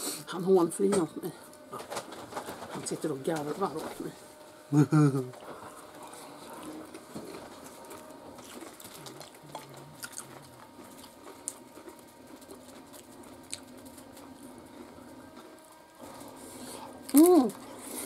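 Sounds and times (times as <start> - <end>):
soft chewing with clicks: 5.7 - 15.5.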